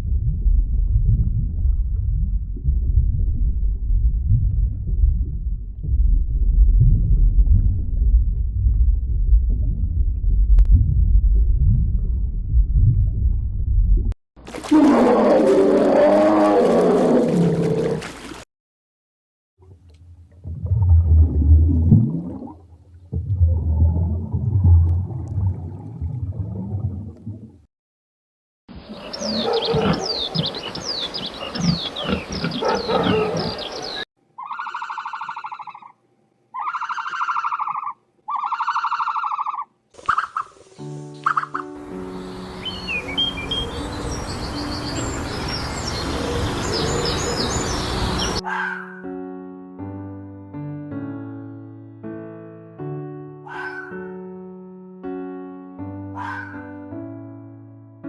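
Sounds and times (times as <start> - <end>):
animal growling: 14.5 - 18.4, 28.9 - 34.0
animal roar: 14.5 - 18.4, 28.9 - 34.0
pitched animal calls: 14.5 - 18.4, 28.9 - 36.0, 36.6 - 40.5, 53.5 - 54.0, 56.2 - 56.6
falling whistle calls: 42.6 - 48.4.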